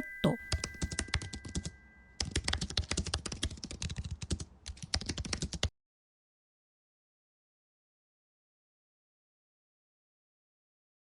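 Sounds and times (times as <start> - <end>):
keyboard typing: 0.0 - 5.7.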